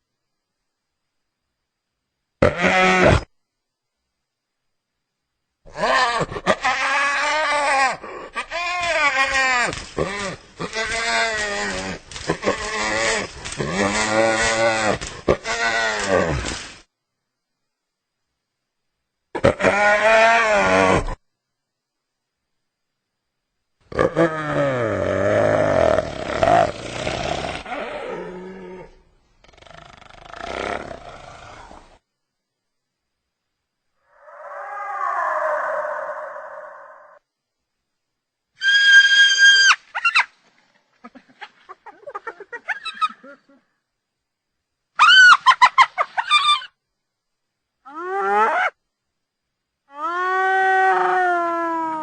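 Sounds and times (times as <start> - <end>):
hyena calling: 5.7 - 16.6, 45.0 - 46.8
hyena giggling calls: 40.9 - 43.8.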